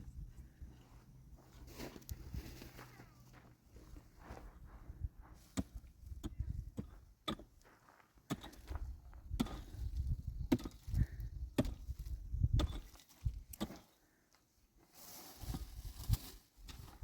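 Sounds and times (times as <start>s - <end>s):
hand tool chopping strikes: 7.2s - 7.5s, 11.6s - 11.8s.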